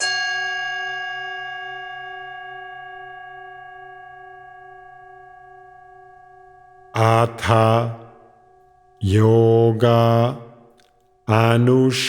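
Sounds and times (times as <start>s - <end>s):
singing bowl ringing: 0.0s - 7.0s.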